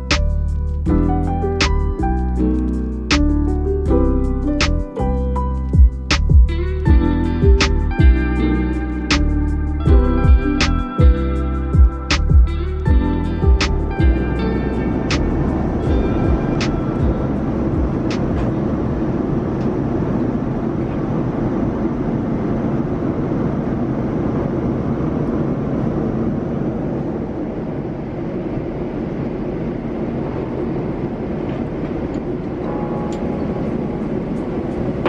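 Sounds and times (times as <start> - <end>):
airliner cabin engine rumble: 15.0 - 35.0.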